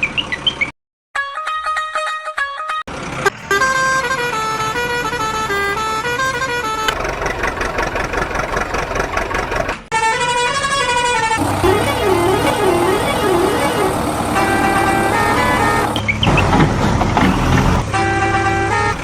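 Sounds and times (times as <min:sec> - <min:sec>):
stepping electronic tones: 0:03.2 - 0:07.0, 0:11.4 - 0:16.6
wavering siren-like tone: 0:11.4 - 0:16.0.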